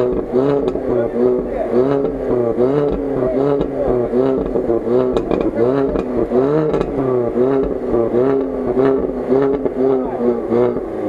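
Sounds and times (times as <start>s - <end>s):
car engine revving: 0.0s - 11.0s
short clanks: 5.1s - 7.0s.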